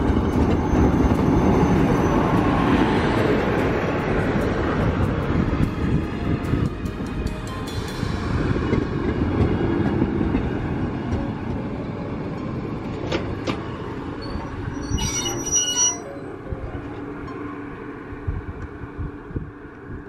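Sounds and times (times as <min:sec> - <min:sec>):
train wheels rumbling on rails: 0:00.0 - 0:20.0
high wheel squeal: 0:00.1 - 0:02.7, 0:14.2 - 0:17.0.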